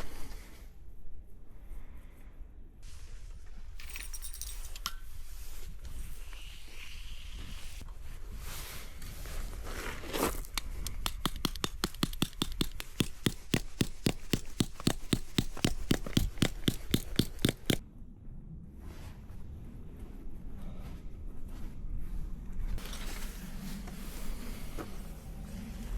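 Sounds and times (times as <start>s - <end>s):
rapid sharp clicks: 10.6s - 17.8s.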